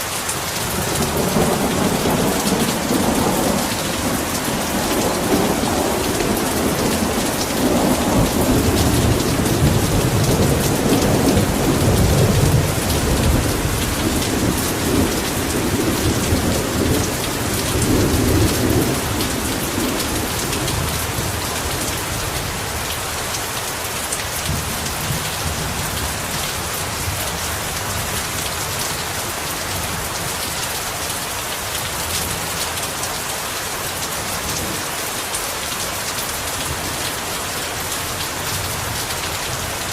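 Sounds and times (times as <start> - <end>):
heavy rain pouring: 0.0 - 39.9
rolling thunder rumble: 0.7 - 22.5.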